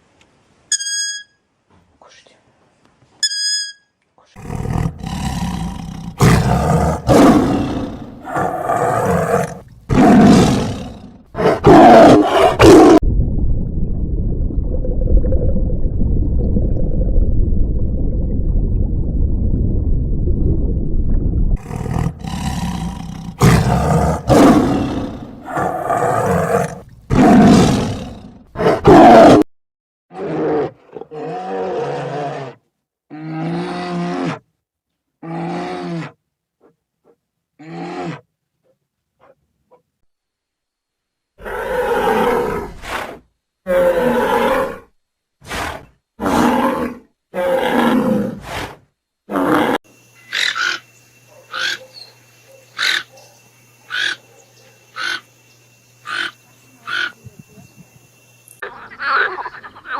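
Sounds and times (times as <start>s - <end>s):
large animal roaring: 4.4s - 13.0s, 21.6s - 29.4s, 41.4s - 44.9s, 45.5s - 49.8s
low rumbling growl: 12.5s - 25.9s.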